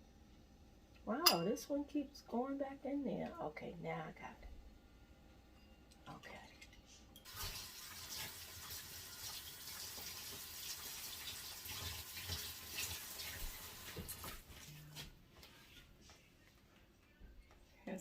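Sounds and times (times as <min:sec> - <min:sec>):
running water: 0:07.3 - 0:14.4.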